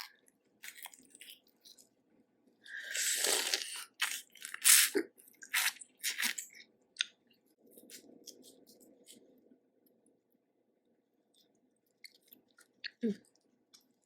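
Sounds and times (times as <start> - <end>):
crunching crawfish shells: 0.0 - 1.9.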